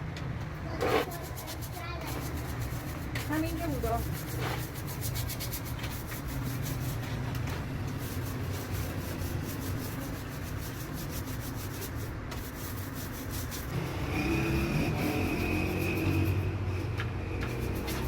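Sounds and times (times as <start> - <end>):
rhythmic rubbing strokes: 0.7 - 18.0.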